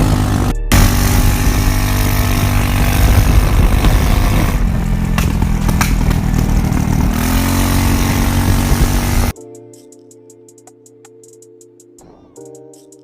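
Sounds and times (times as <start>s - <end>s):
motorcycle engine idling: 0.0s - 9.3s.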